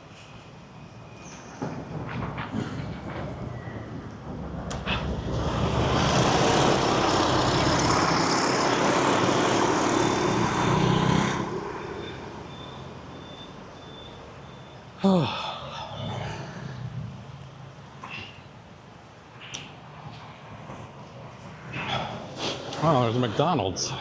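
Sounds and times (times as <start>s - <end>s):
quiet street traffic: 0.0s - 24.0s
motor vehicle passing close by: 4.4s - 12.4s.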